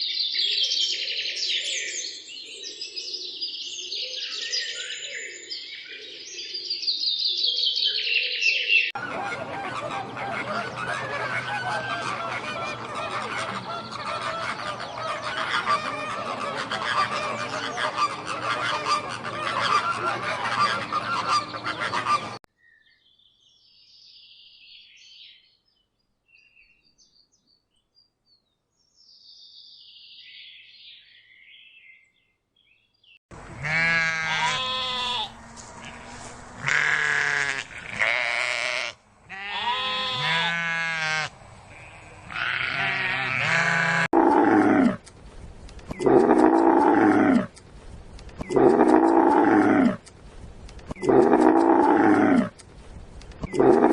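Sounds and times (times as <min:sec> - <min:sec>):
geese honking: 0:09.0 - 0:22.4, 0:33.4 - 0:44.1
long wavering animal calls: 0:46.0 - 0:47.6, 0:48.4 - 0:50.0, 0:51.0 - 0:52.6, 0:53.4 - 0:53.9.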